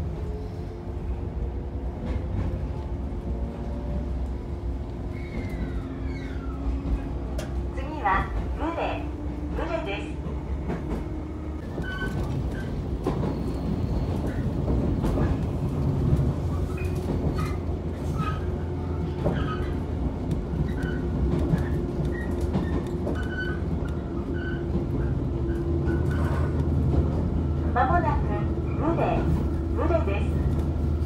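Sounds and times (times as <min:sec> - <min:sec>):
train wheels rumbling on rails: 0:00.0 - 0:31.0
faint squeaks: 0:05.1 - 0:07.2.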